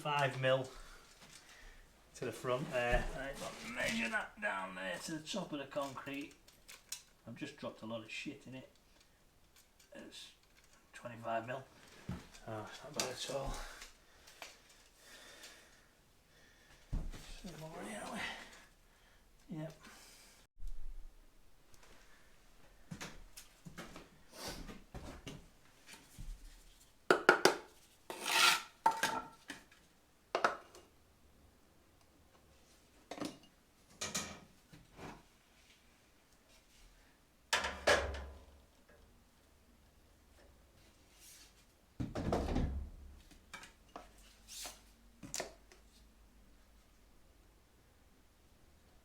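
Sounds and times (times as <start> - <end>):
metal tool scraping concrete: 28.1 - 28.8.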